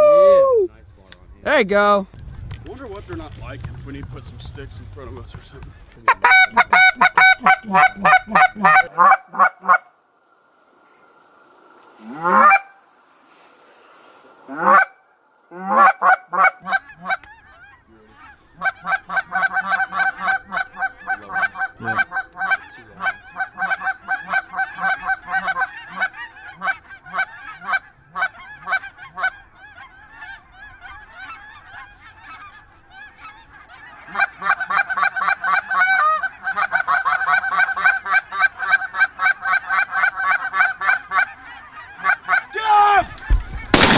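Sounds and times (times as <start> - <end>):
geese honking: 5.8 - 43.9.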